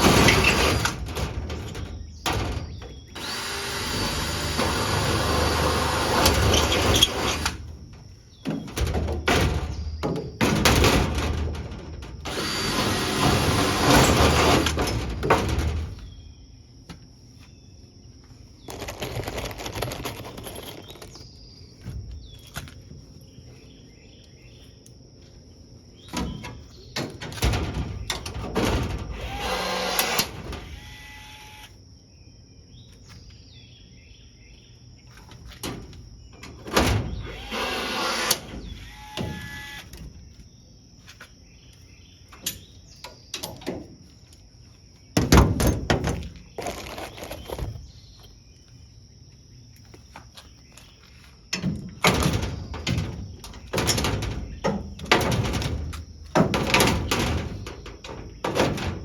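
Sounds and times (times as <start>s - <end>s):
tool noise: 0.0s - 7.7s, 12.2s - 15.5s, 27.4s - 31.7s, 36.7s - 40.0s
insect trill: 0.0s - 59.0s.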